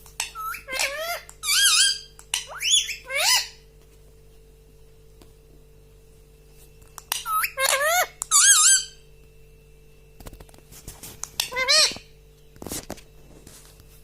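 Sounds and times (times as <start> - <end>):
parrot squeaky whistled calls: 0.2 - 3.6, 7.1 - 9.0, 11.4 - 12.0.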